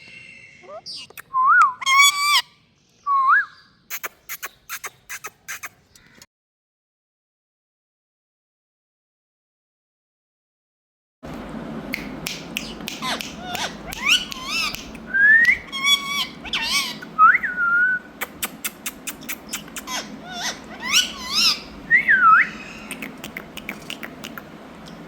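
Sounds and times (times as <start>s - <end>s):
parakeet chirps: 0.0s - 2.5s, 3.5s - 6.1s, 12.0s - 25.0s
sharp bird clicks: 3.9s - 6.3s, 12.0s - 16.7s, 18.2s - 21.6s, 22.8s - 25.0s
parakeet whistling: 12.3s - 18.1s, 18.7s - 24.3s.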